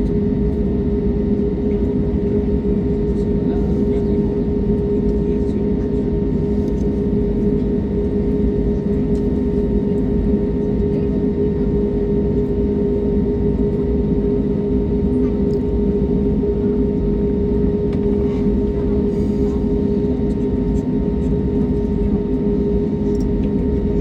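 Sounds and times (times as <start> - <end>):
airliner cabin engine drone: 0.0 - 24.0.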